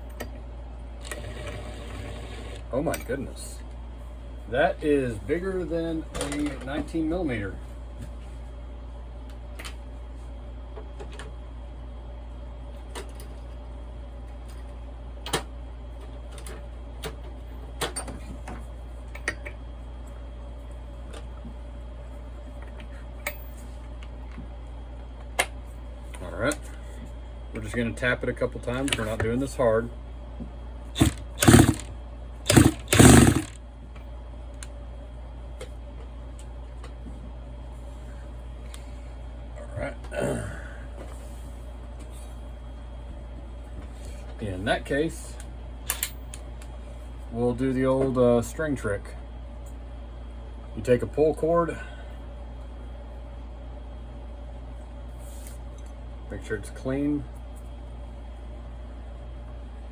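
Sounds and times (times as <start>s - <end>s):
air impact wrench rattling: 31.0s - 31.9s, 32.5s - 33.6s.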